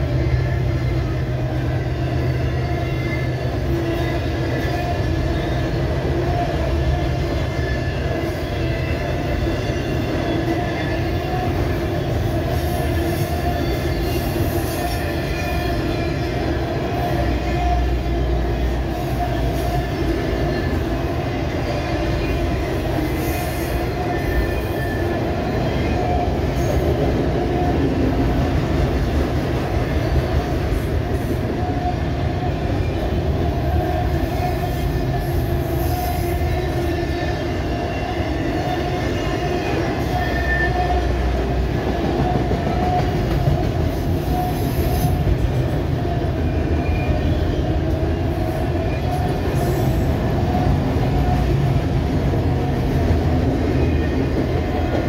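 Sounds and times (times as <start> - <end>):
freight train wheels rumbling: 0.0 - 55.0
short high wheel squeals: 39.9 - 41.0.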